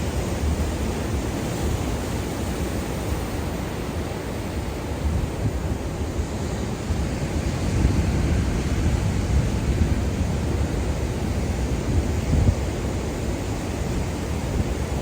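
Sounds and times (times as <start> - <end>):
wind rumbling on microphone: 4.7 - 15.0.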